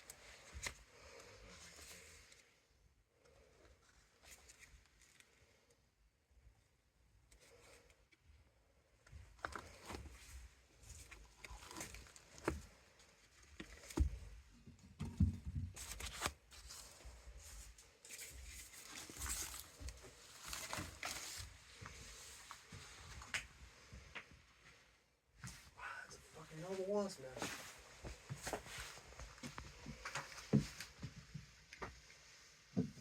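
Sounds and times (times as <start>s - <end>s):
rustling and scraping: 9.1s - 25.7s, 26.6s - 33.0s.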